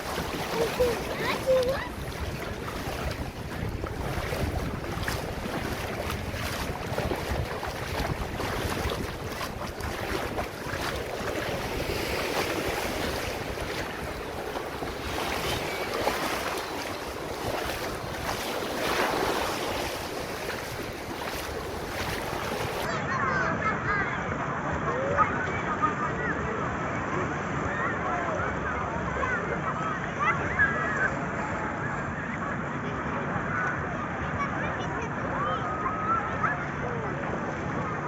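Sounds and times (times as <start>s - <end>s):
wind buffeting microphone: 0.0s - 22.9s
sea water rushing around boat: 0.0s - 38.0s.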